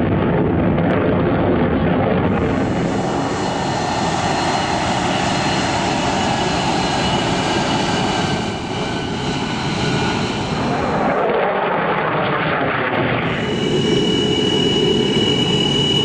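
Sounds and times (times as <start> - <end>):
aircraft engines droning: 0.0 - 16.0
faint high tones: 13.3 - 16.0.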